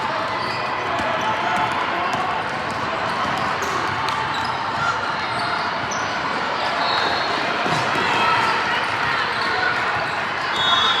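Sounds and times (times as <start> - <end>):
basketball bouncing on court: 0.5 - 4.6.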